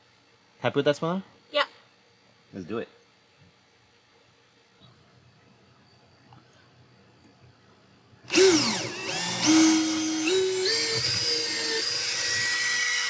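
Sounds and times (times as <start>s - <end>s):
electric drill boring fiberglass: 8.3s - 13.0s.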